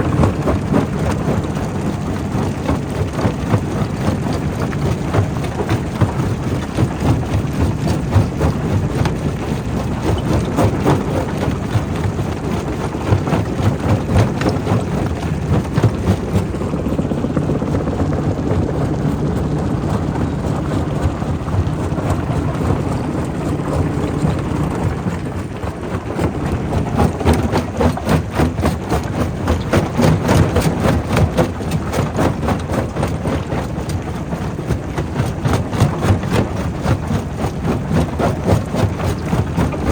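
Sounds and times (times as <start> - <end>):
heavy machinery drone: 16.6 - 27.2.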